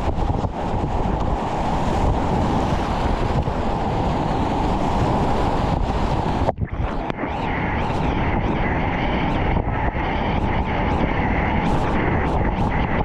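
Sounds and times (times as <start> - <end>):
rushing whitewater: 0.0 - 8.2
wind buffeting microphone: 0.0 - 13.0.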